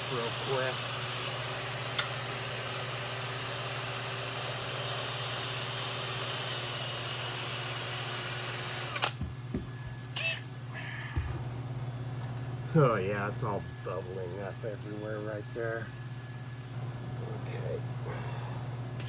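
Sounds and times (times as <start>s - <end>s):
angle grinder running: 0.0s - 9.2s.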